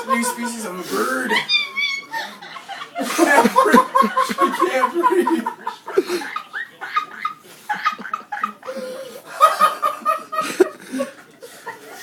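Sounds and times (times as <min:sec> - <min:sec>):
people laughing: 0:00.0 - 0:12.0
woman laughing in squeaks: 0:01.4 - 0:02.6.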